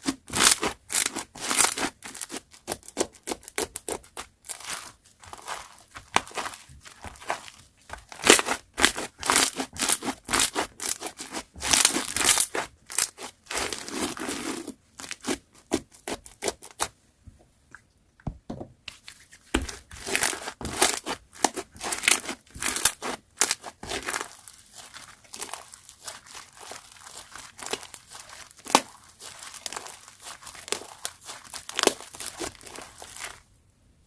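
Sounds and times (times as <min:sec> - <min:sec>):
slime squished by hand: 0:19.5 - 0:33.4.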